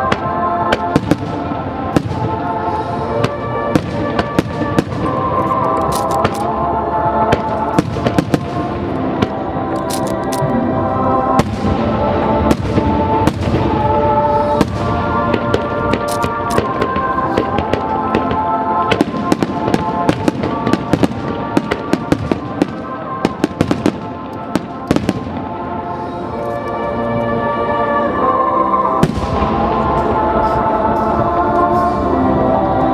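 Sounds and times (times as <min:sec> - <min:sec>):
fireworks bangs and crackles: 0:00.0 - 0:06.6, 0:07.2 - 0:09.7, 0:11.3 - 0:25.9, 0:29.0 - 0:30.8.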